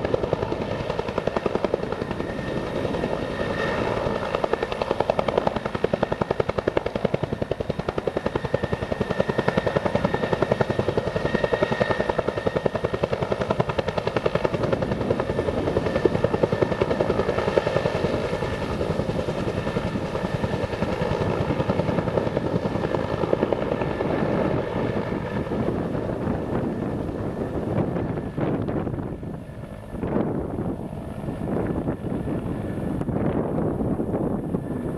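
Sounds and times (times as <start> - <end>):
helicopter rotor beating: 0.0 - 34.9
turbine whine: 14.6 - 34.9.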